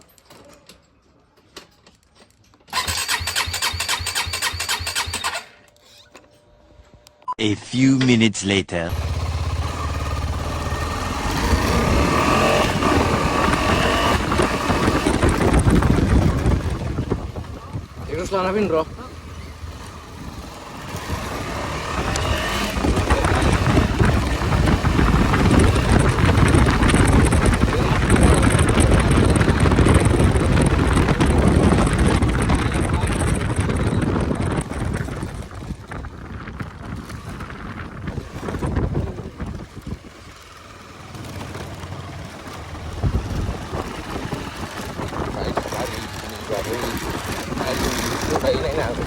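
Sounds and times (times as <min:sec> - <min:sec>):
wind buffeting microphone: 0:08.9 - 0:40.4, 0:42.3 - 0:49.0
vehicle rumble: 0:08.9 - 0:49.0.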